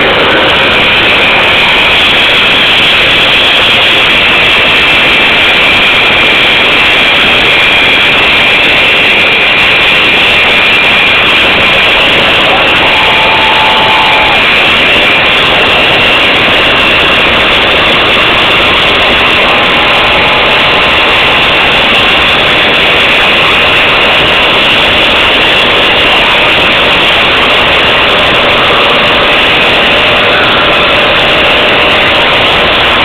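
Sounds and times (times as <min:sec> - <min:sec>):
motorcycle engines running: 0:08.7 - 0:33.0.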